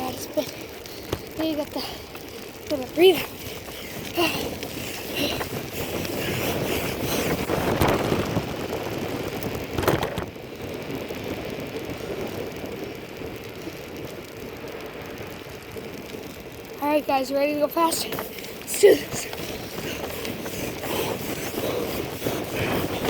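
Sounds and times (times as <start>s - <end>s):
bicycle rolling: 0.0s - 23.0s
wind buffeting microphone: 0.0s - 23.0s.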